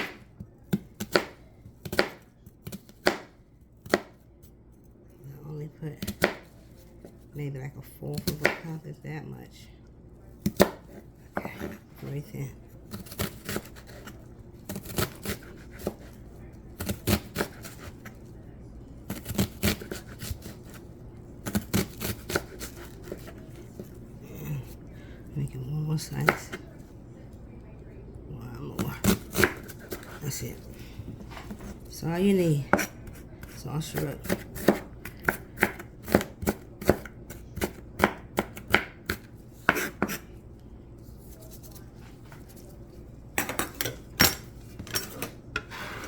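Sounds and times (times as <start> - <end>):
knife chopping on cutting board: 0.0 - 4.2, 6.0 - 6.5, 10.4 - 11.8, 12.9 - 16.2, 16.8 - 18.2, 19.1 - 20.8, 21.4 - 24.0, 28.8 - 30.2, 32.6 - 40.2.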